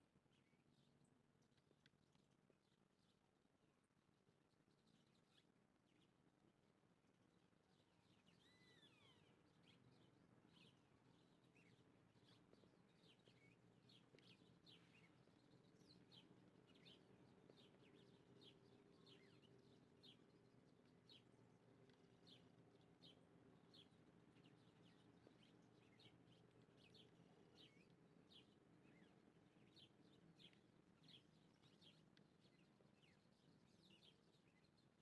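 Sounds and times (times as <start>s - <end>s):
small birds chirping: 8.1s - 35.0s.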